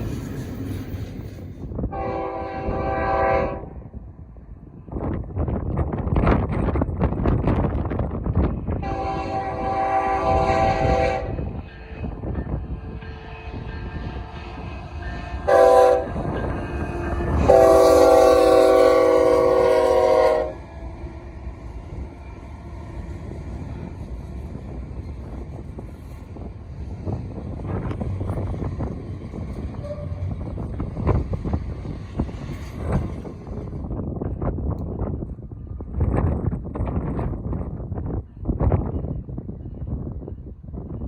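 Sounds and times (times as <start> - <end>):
train rumble: 0.0 - 41.0
wind on microphone: 0.0 - 41.0
locomotive air horn: 1.9 - 3.8, 8.8 - 11.5, 13.1 - 21.2, 29.8 - 30.3.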